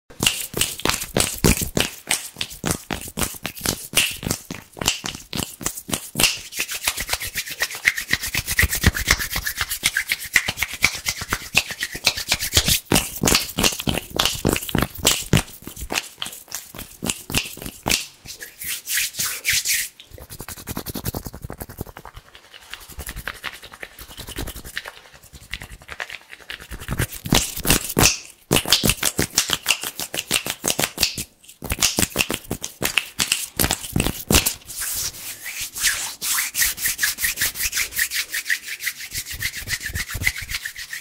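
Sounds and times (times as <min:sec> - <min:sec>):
hands rubbing rapidly: 0:00.2 - 0:41.0.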